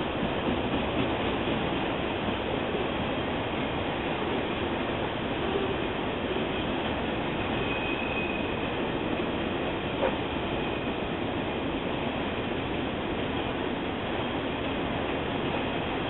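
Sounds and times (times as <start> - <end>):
train wheels rumbling on rail: 0.0 - 16.0
faint high squeal: 7.4 - 8.8.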